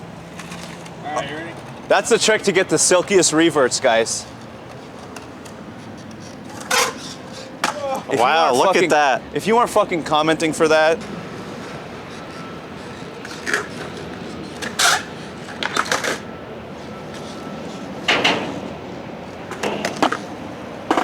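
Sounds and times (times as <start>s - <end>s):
skateboard clacks: 4.7s - 8.0s, 12.8s - 16.3s, 19.5s - 21.0s.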